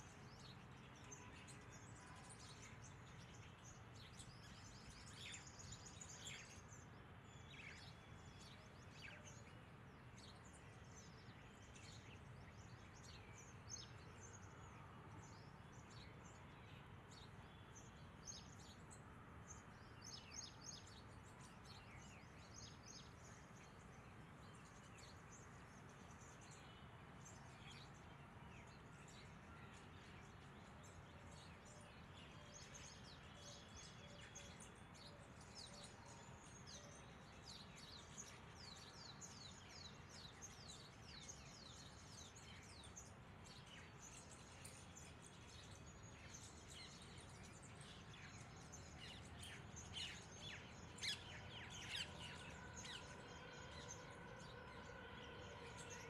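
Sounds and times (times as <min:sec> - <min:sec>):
faint bird chirps: 0:00.0 - 0:56.0
low outdoor background hum: 0:00.0 - 0:56.0.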